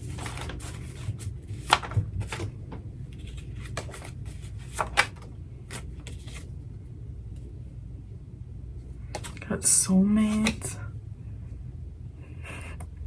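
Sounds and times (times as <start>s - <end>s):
cards being shuffled and laid down: 0.0s - 6.5s, 9.0s - 9.4s, 10.2s - 10.7s.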